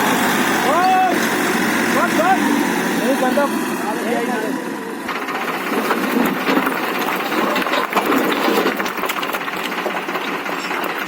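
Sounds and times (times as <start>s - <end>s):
tractor engine running: 0.0s - 11.0s
clicks and rattles: 5.1s - 11.0s.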